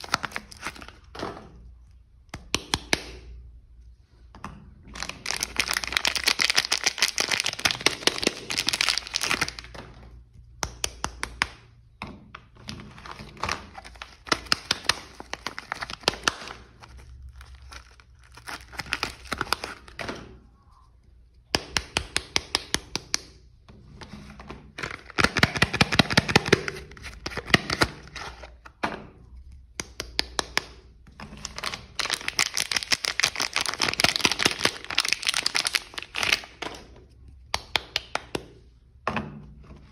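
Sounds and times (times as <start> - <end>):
soap wrapping crinkling and tearing: 0.0 - 1.2, 4.9 - 10.2, 12.9 - 20.0, 24.7 - 28.7, 29.4 - 38.3.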